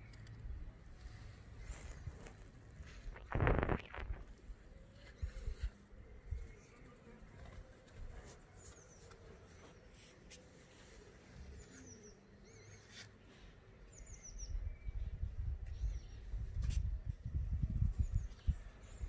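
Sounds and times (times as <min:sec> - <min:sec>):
small birds chirping: 0:00.0 - 0:19.0
low microphone rumble: 0:03.1 - 0:04.3.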